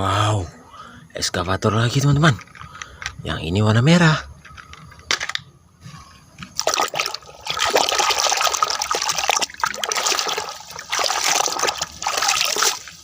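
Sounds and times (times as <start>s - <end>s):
water splashing over plastic toy: 6.6s - 13.0s.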